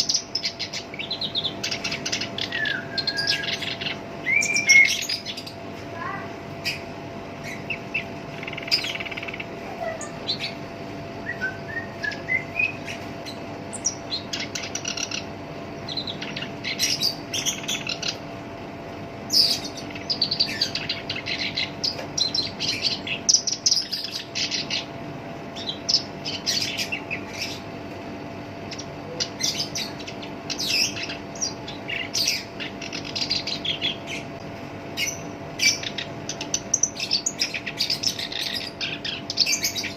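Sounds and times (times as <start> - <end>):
bird singing harsh chattering song: 0.0 - 18.4, 19.2 - 39.9
faint steady hum: 0.0 - 39.9.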